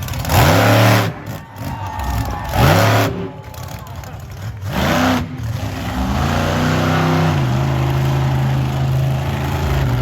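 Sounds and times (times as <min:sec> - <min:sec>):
truck engine revving: 0:00.0 - 0:10.0.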